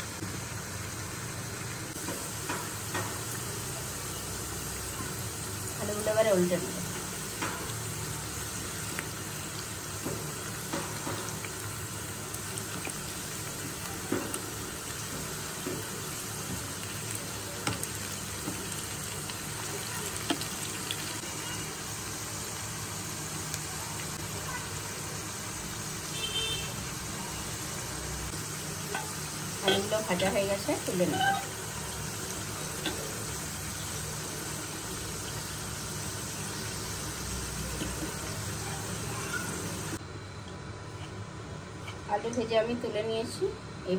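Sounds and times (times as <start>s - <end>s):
potato slices sizzling in oil: 0.0s - 40.0s.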